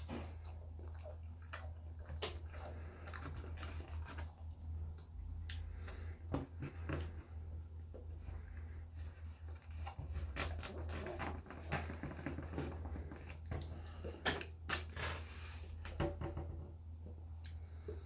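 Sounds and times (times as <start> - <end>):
person chewing: 0.0 - 7.2
wet mouth clicks and smacks: 17.3 - 17.6.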